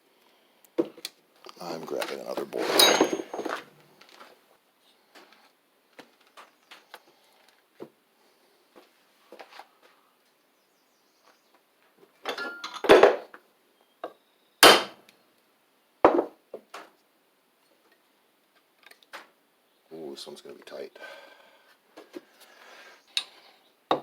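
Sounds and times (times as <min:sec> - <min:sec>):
tools and parts clinking: 0:02.0 - 0:04.3, 0:12.2 - 0:13.2.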